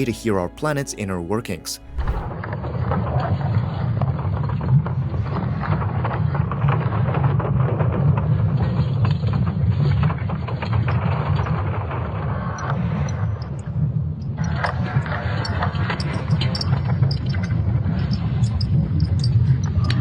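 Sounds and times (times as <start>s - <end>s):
low rumble: 1.8s - 2.4s.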